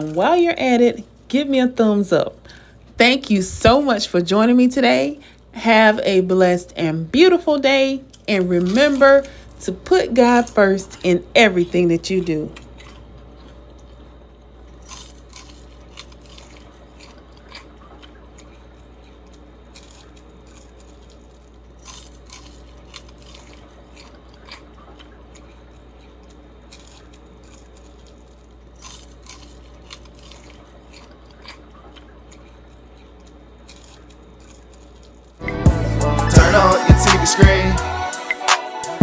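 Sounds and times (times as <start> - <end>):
person chewing crunchy food: 0.0 - 0.4, 8.0 - 38.2
low hum: 33.6 - 38.1.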